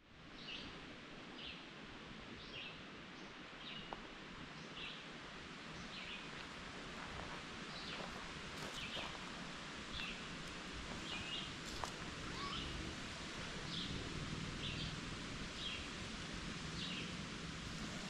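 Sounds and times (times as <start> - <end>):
leaves rustling: 6.2 - 18.0
bird calling high note: 12.2 - 12.9.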